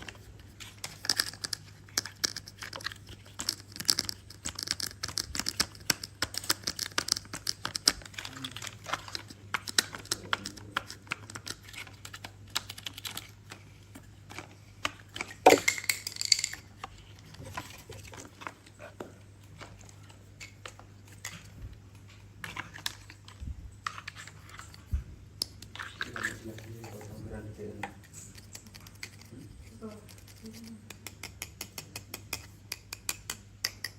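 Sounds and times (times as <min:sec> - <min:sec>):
plastic toy parts clicking: 0:00.0 - 0:13.3
crinkling: 0:00.0 - 0:24.9
plastic parts clattering: 0:15.2 - 0:18.6.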